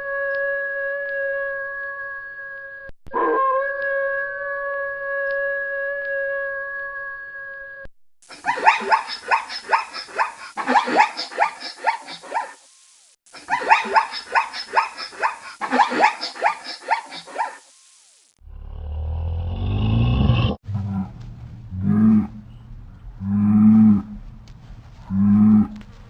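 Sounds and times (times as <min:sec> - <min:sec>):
dog yelping barks: 0:08.4 - 0:12.6, 0:13.4 - 0:17.6.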